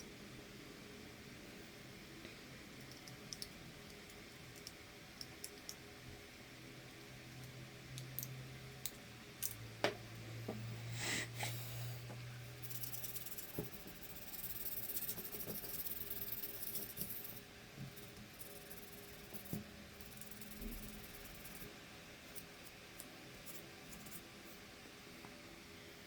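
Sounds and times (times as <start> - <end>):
sandpaper scratching circuit board: 12.6 - 17.4.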